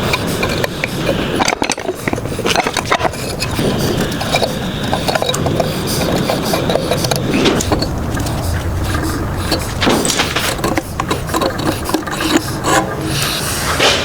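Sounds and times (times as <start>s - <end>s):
forge roar: 3.4s - 14.0s.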